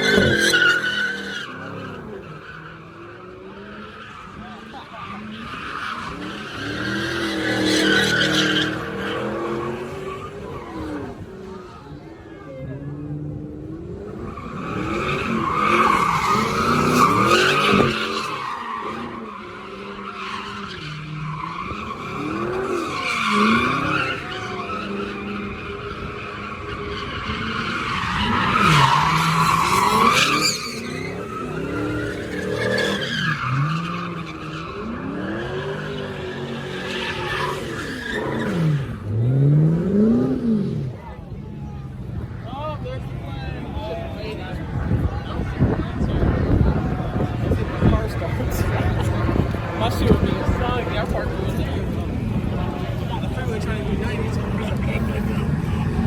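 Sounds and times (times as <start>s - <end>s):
car engine passing by: 12.9s - 56.0s
tyres squealing: 14.2s - 39.0s.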